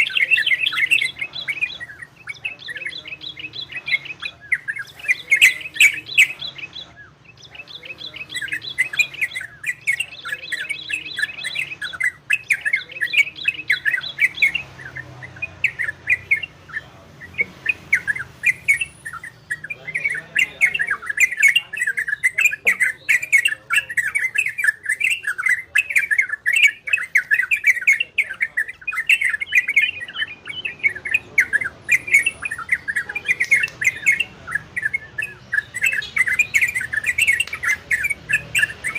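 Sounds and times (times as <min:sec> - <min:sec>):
bird chattering song: 0:00.0 - 0:38.9.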